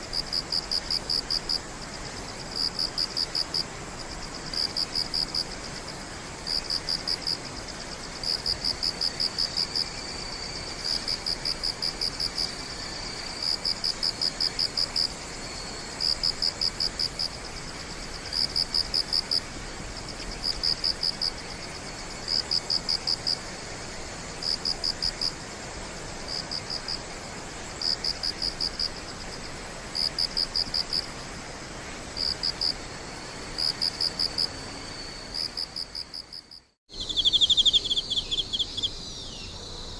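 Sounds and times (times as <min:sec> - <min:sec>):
cricket chirping: 0:00.0 - 0:39.9
high insect trill: 0:00.0 - 0:39.9.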